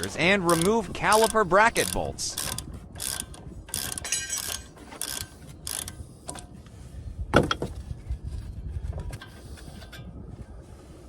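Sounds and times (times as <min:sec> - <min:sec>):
ratchet clicking: 0:00.0 - 0:06.5.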